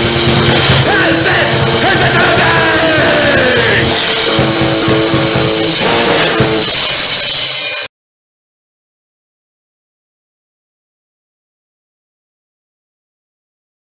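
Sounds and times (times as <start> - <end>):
drum kit: 0.0 - 7.9
loud rock music: 0.0 - 7.9.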